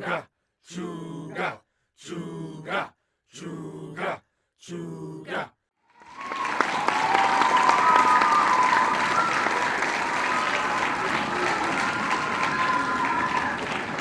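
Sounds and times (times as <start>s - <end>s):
crowd applauding: 5.9s - 14.0s
whistles: 5.9s - 14.0s.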